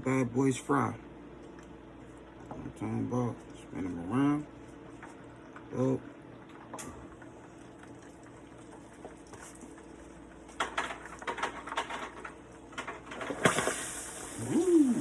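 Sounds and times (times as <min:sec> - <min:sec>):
chicken wings deep-frying: 0:12.8 - 0:15.0.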